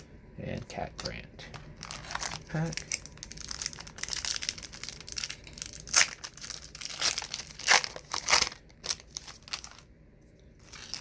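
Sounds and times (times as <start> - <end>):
card pack wrapper crinkling: 0.9 - 9.9, 10.6 - 11.0
paper ripping: 1.8 - 9.8, 10.6 - 11.0.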